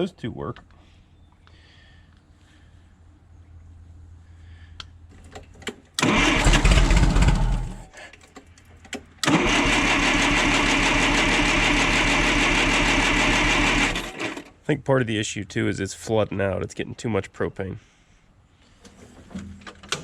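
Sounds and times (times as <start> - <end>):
engine cranking: 5.3 - 14.5.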